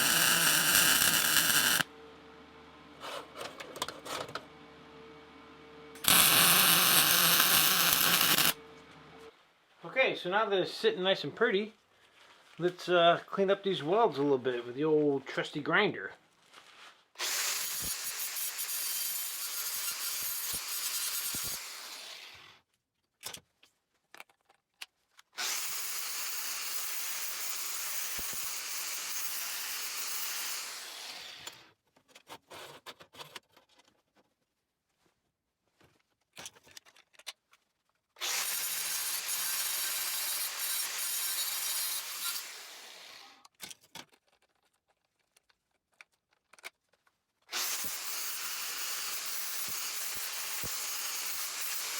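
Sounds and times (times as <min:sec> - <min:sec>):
angle grinder grinding steel: 0:00.0 - 0:01.9, 0:06.0 - 0:08.6, 0:17.2 - 0:22.5, 0:25.4 - 0:31.6, 0:38.2 - 0:43.4, 0:47.5 - 0:51.9.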